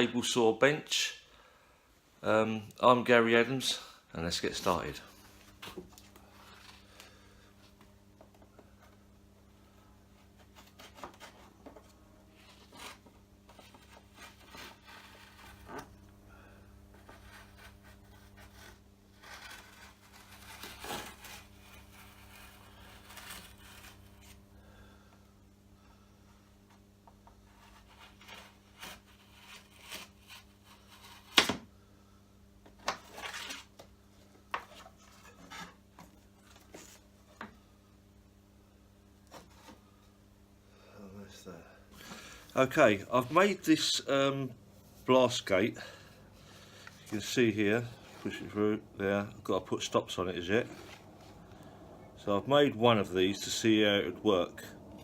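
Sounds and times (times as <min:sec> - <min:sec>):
steady low hum: 0:01.1 - 0:55.0
rubbing and scraping: 0:10.2 - 0:16.0, 0:16.9 - 0:24.5, 0:27.3 - 0:31.4.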